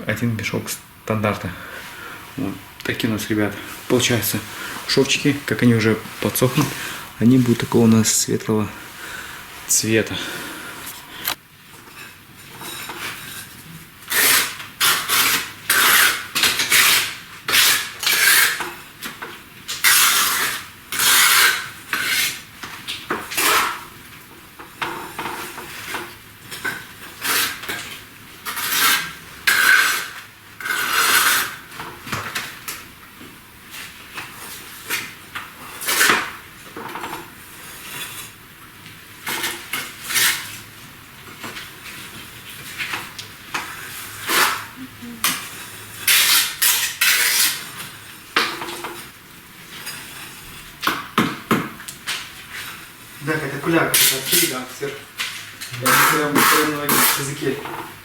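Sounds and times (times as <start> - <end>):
tool scraping mortar on brick: 12.6 - 18.7, 19.8 - 22.4, 25.1 - 31.7, 42.7 - 48.1, 55.8 - 57.6.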